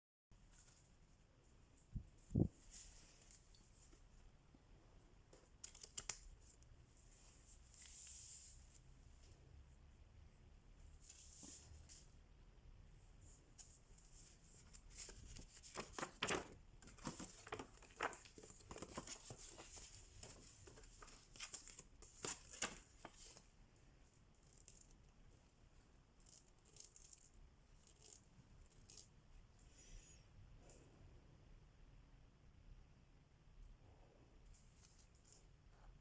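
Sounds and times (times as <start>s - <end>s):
crinkling and rustling materials: 13.6s - 23.6s.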